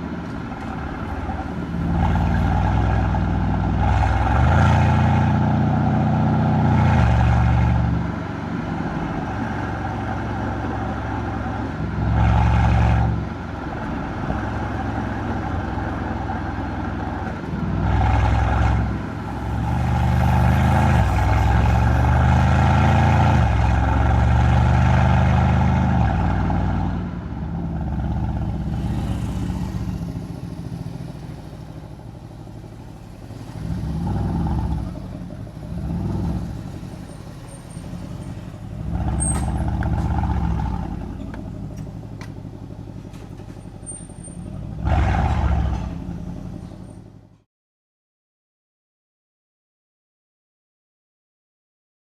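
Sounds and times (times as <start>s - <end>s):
car exhaust accelerating hard: 11.9s - 43.1s, 44.4s - 46.7s.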